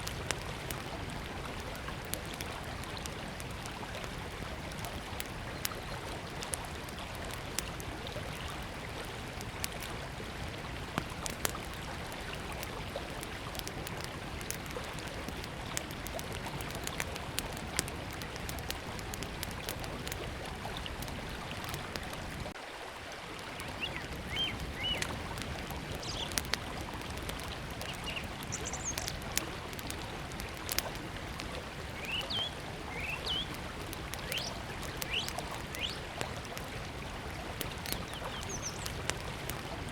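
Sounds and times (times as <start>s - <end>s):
wood fire crackling: 0.0s - 22.6s, 23.4s - 39.9s
birds chirping: 23.6s - 25.0s, 26.0s - 26.4s, 27.8s - 29.2s, 32.0s - 33.6s, 34.2s - 36.0s, 37.8s - 39.0s.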